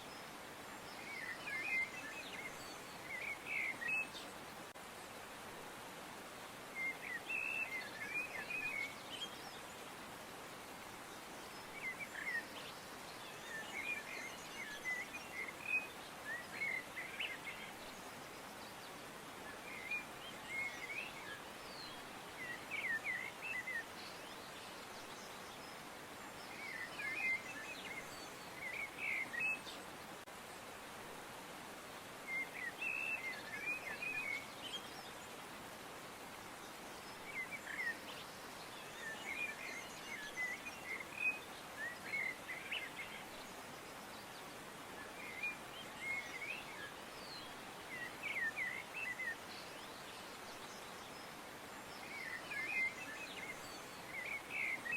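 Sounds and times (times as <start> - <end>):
steady outdoor hiss: 0.0 - 54.9
small birds chirping: 36.4 - 54.9.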